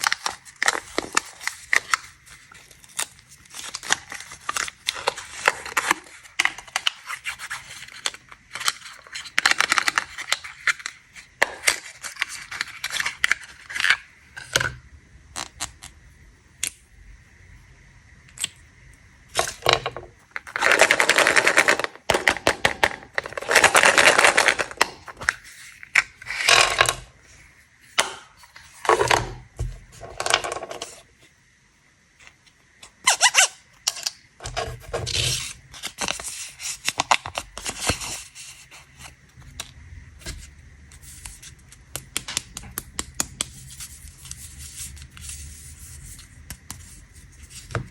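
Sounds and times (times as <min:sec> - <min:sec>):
plastic candy wrappers crinkling: 0:00.0 - 0:14.6, 0:19.4 - 0:27.2.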